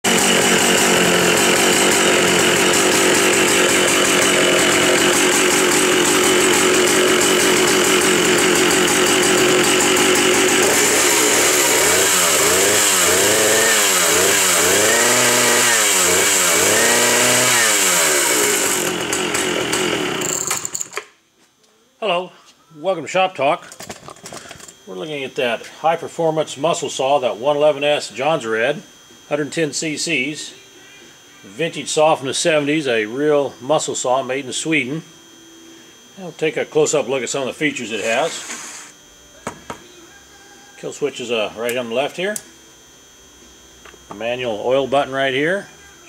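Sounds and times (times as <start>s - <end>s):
chainsaw revving: 0.0s - 21.0s, 37.9s - 38.9s.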